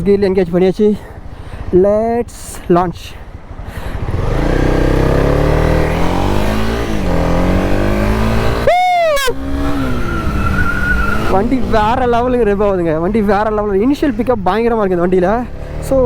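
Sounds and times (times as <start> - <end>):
motorcycle engine revving hard: 3.9 - 8.7, 9.3 - 12.1, 15.4 - 16.0.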